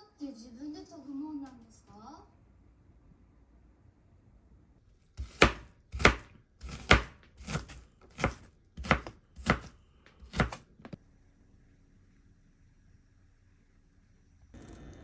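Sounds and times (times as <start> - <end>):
knife chopping on cutting board: 5.2 - 11.0.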